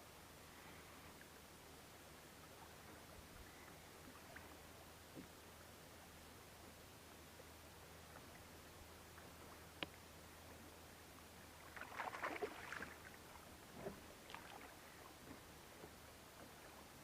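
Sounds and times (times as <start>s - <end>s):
water splashing around kayak: 11.6s - 17.0s.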